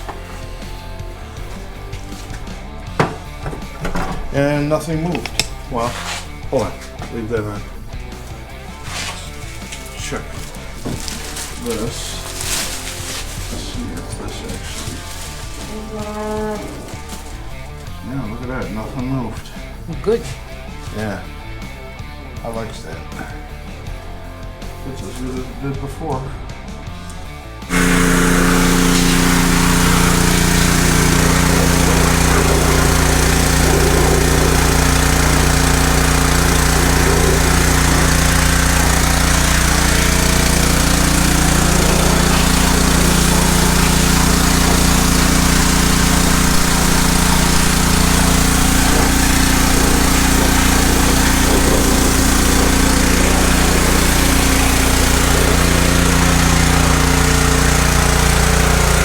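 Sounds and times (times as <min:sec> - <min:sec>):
pressure washer engine running: 0:00.0 - 0:21.0, 0:27.6 - 0:59.0
pressure washer spray hiss: 0:27.7 - 0:59.0.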